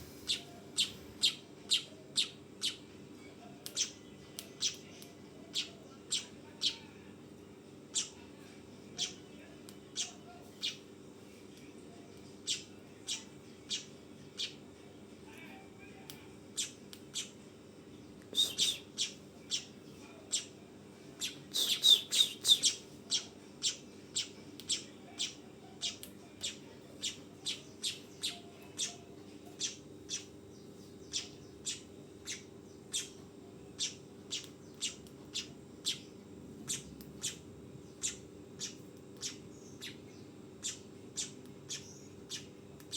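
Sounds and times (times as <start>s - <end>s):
bird chattering: 0.0s - 2.8s, 10.0s - 10.8s, 18.4s - 19.7s, 21.2s - 30.3s, 31.1s - 33.2s, 33.8s - 36.1s, 36.7s - 37.4s, 38.0s - 40.0s, 40.6s - 42.5s
bird chirping: 0.0s - 2.8s, 18.4s - 19.7s, 21.2s - 29.0s, 29.6s - 33.2s, 33.8s - 42.9s
steady low hum: 0.0s - 3.2s.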